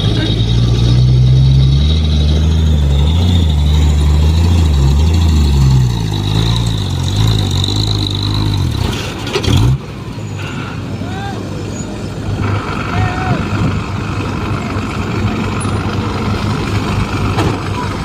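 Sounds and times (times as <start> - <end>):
truck diesel engine labouring: 0.0 - 18.0
steady high whine: 12.4 - 14.7.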